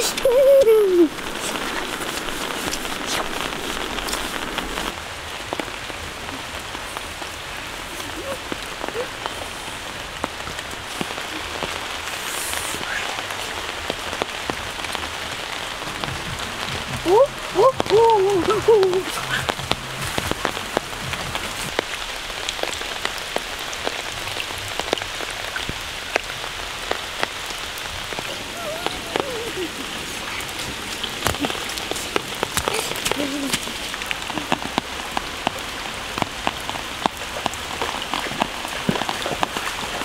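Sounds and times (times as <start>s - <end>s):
rain on water and foliage: 0.0s - 40.0s.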